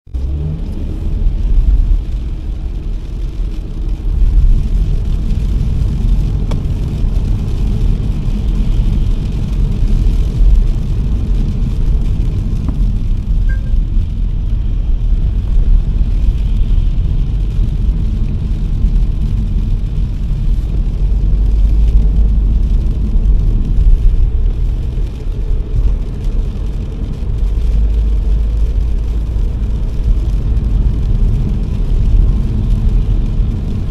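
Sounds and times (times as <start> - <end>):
car engine and road rumble: 0.0 - 33.9
rain and wet tyres hissing: 0.2 - 33.9.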